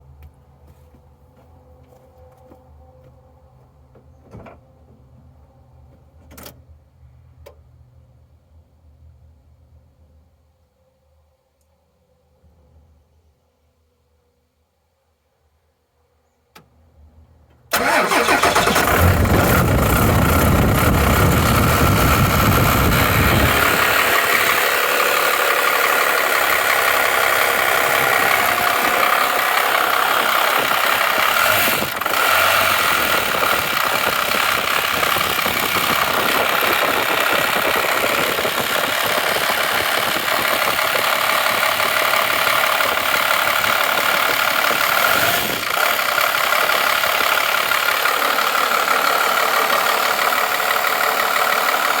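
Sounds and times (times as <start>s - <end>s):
diesel engine clattering: 17.7s - 52.0s.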